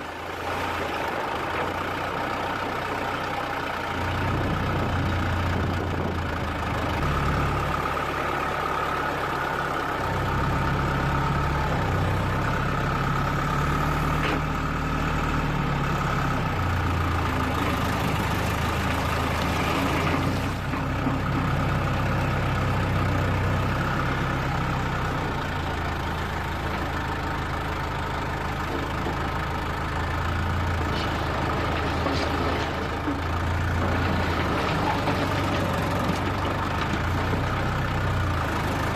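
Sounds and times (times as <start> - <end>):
heavy machinery diesel engine: 0.0 - 38.9.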